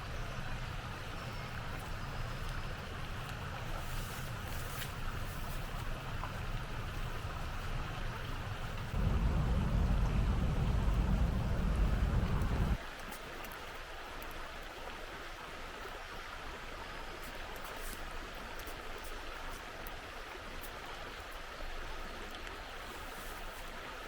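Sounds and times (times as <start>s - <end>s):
water hissing: 6.6s - 12.8s
loud low rumble: 7.1s - 12.8s.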